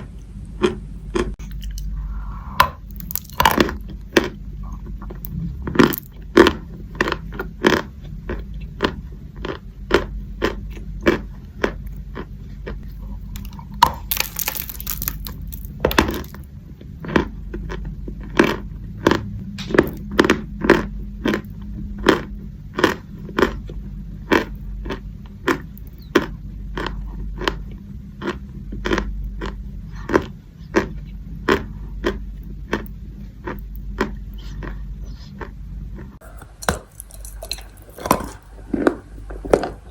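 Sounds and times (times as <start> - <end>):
chalk being bitten and crunched: 2.8 - 3.6, 13.3 - 16.4.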